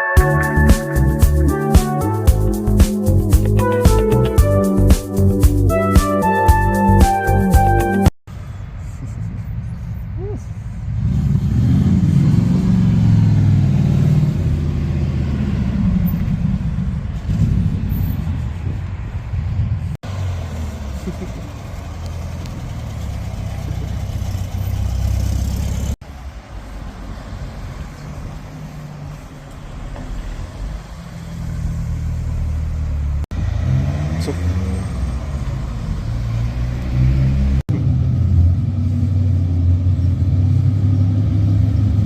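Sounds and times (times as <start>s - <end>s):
car engine humming: 20.0s - 34.4s.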